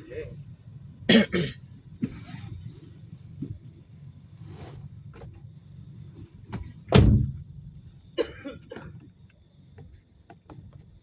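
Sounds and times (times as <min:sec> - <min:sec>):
door shutting with heavy thud: 0:06.5 - 0:07.5.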